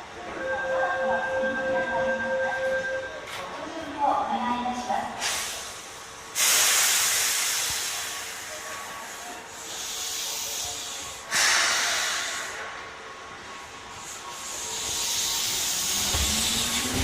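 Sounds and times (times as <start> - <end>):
compressed air hiss from train: 5.2 - 12.8, 13.9 - 17.0.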